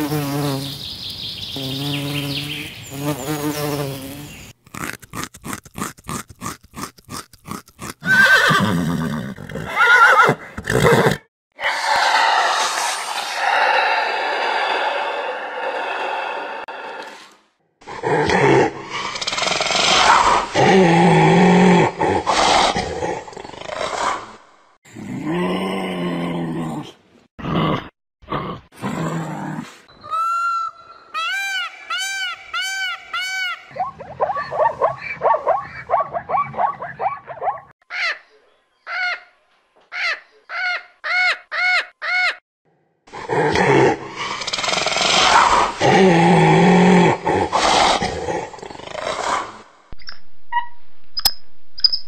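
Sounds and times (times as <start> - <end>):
large animal growling and roaring: 11.6 - 17.2, 43.1 - 49.6
high arching animal calls: 30.0 - 39.3
faint sharp high chirps: 50.0 - 52.0.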